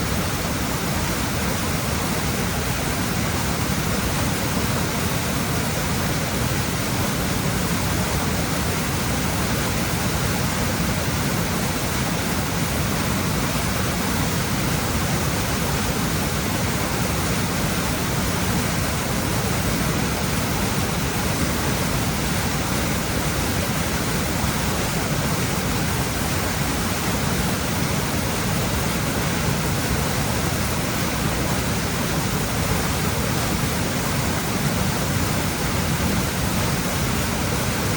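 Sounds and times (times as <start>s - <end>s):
waterfall and rapids rushing: 0.0s - 37.9s.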